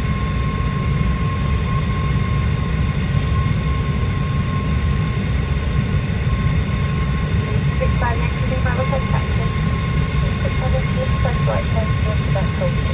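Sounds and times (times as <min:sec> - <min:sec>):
aircraft engine drone: 0:00.0 - 0:12.9
thin steady whine: 0:07.5 - 0:12.9.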